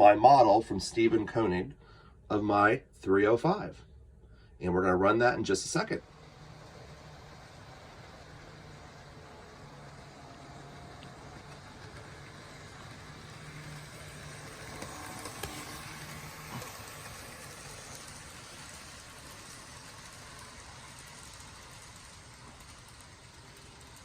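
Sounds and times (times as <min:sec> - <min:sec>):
model train motor hum: 0:05.5 - 0:24.0.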